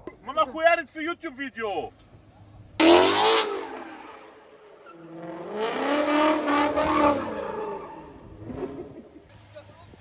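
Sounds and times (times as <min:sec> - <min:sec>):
car engine revving: 0:02.8 - 0:09.3.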